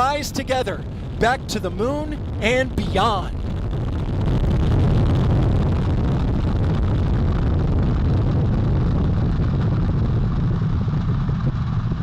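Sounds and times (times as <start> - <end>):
rocket engines deep rumble: 0.0 - 12.0.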